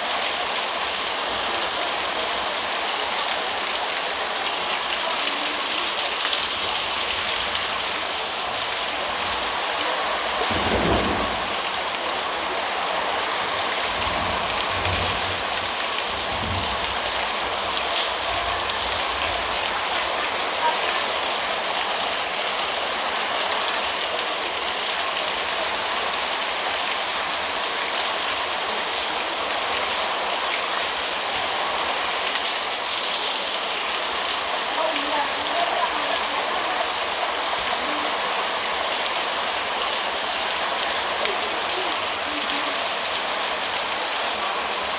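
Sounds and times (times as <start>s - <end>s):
heavy rain pouring: 0.0s - 44.9s
low rumbles: 10.3s - 12.0s, 13.6s - 19.4s.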